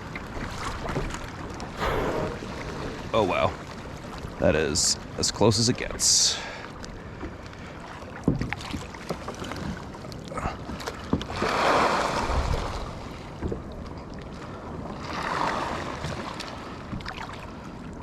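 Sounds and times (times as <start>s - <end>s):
low wind rumble: 1.8s - 4.0s.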